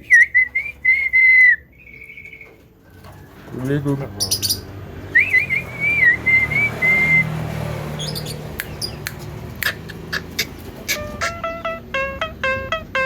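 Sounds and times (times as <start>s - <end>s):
bird whistling: 0.0s - 2.6s, 4.2s - 7.4s, 8.0s - 11.5s
bird clicking chips: 8.2s - 11.4s.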